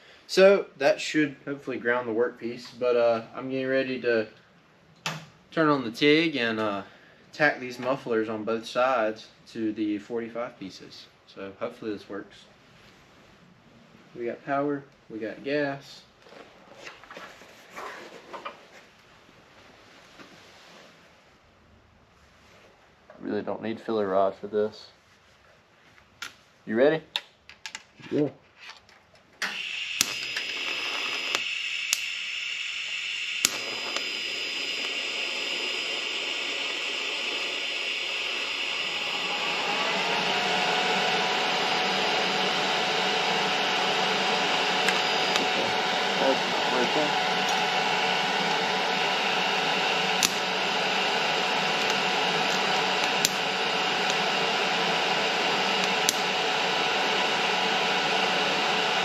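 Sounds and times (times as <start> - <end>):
sharp welding cracks: 29.4 - 37.9, 50.2 - 50.4
welding arc hissing: 29.4 - 59.0.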